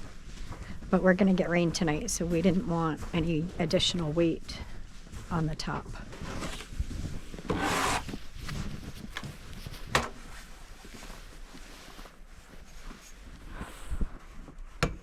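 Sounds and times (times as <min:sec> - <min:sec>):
footsteps in snow: 0:00.0 - 0:14.7
short rustle: 0:06.0 - 0:14.7.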